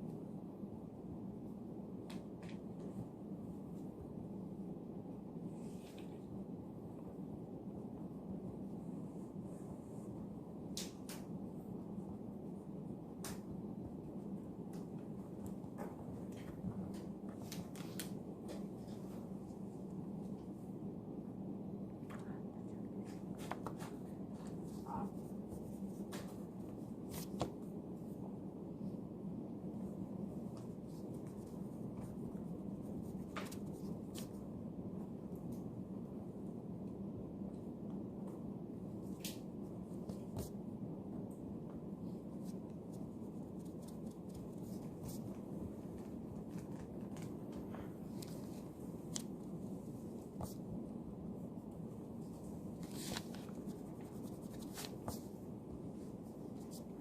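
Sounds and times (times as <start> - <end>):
low room hum: 0.0 - 57.0.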